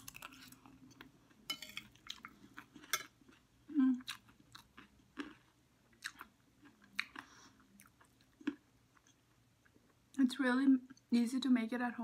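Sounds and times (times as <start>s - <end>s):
person chewing crunchy snack: 0.0s - 0.9s, 1.9s - 9.2s.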